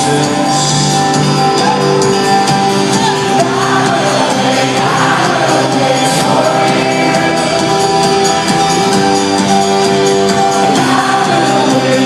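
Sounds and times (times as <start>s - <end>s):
live band playing: 0.0s - 12.0s
singing or crowd voices: 0.0s - 12.0s.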